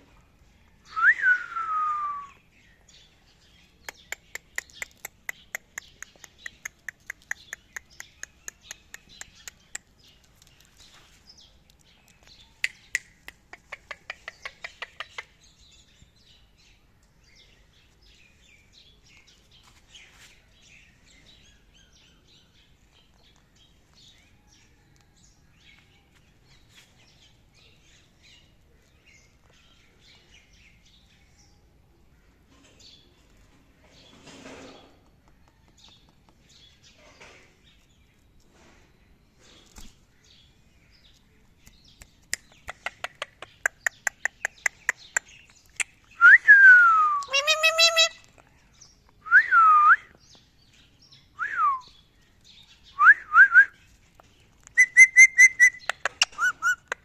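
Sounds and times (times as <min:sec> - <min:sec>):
parrot clicking calls: 0:03.9 - 0:09.9, 0:12.6 - 0:15.3, 0:42.1 - 0:46.0, 0:54.7 - 0:57.0.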